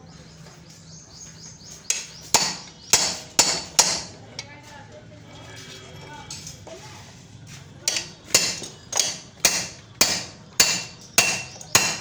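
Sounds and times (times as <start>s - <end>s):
hammer striking metal: 1.9s - 4.2s, 7.9s - 12.0s.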